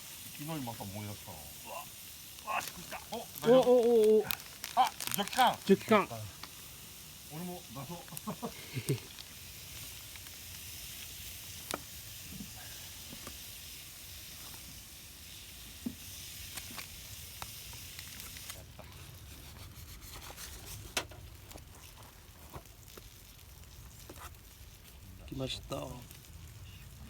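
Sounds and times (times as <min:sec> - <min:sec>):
food sizzling: 0:00.0 - 0:27.0
sharp pops: 0:01.7 - 0:06.7.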